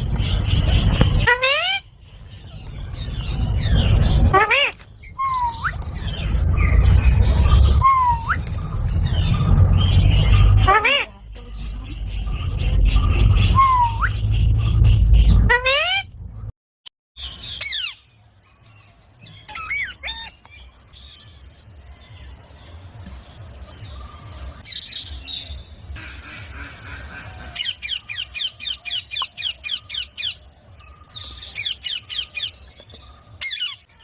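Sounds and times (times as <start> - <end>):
parrot squawking: 1.2 - 1.9, 4.1 - 6.2, 10.1 - 16.1.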